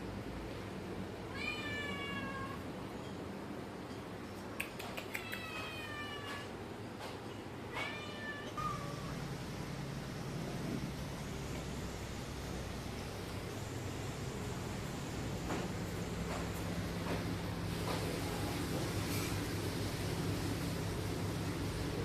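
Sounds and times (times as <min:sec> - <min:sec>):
cat meowing: 0:01.3 - 0:02.6, 0:05.1 - 0:06.5, 0:07.7 - 0:09.1.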